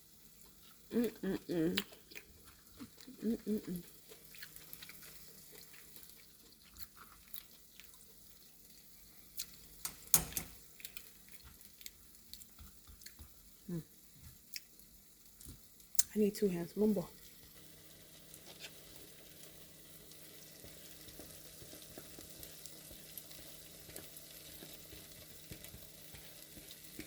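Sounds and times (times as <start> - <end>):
faint kitchen clicks and taps: 9.4 - 13.5, 15.4 - 16.2, 20.5 - 27.0.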